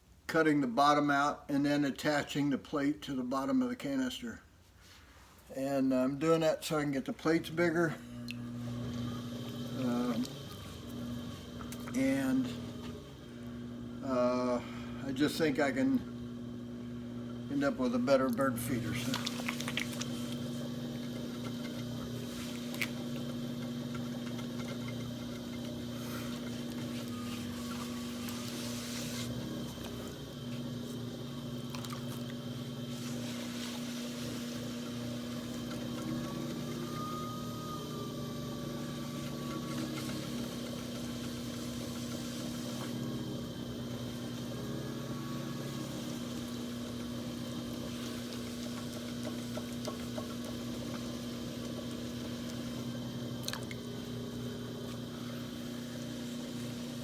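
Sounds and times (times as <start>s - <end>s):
potter's wheel motor humming: 5.8s - 57.0s.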